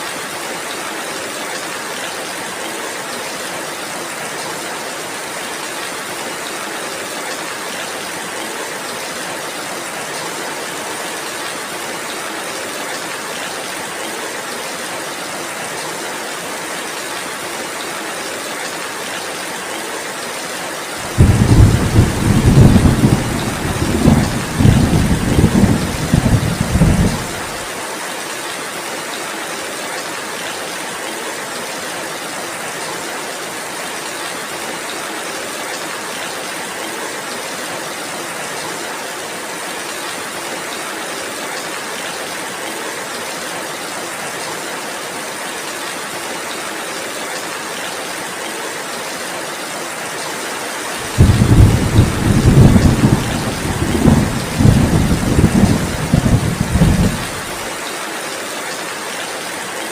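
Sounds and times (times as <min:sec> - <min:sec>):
heavy rain: 0:00.0 - 0:59.9
thunder rumbling: 0:21.0 - 0:27.7, 0:51.1 - 0:57.6.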